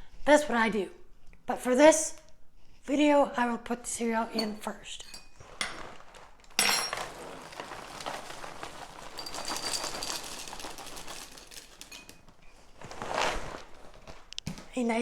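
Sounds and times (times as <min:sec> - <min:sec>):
cereal pouring into a bowl: 0:05.3 - 0:14.6.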